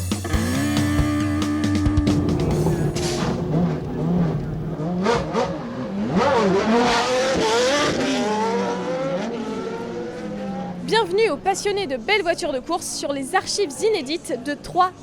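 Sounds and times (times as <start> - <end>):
racing car engine revving: 0.2 - 10.9.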